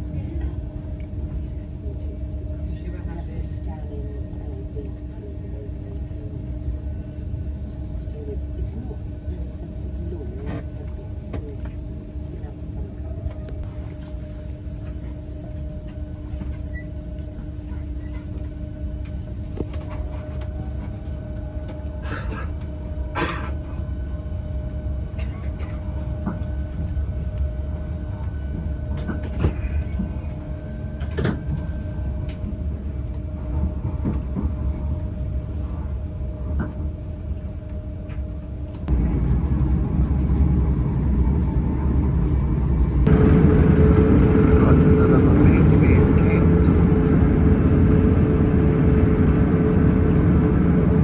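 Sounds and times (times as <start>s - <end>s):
train low rumble: 0.0s - 51.0s
electrical hum: 38.4s - 51.0s.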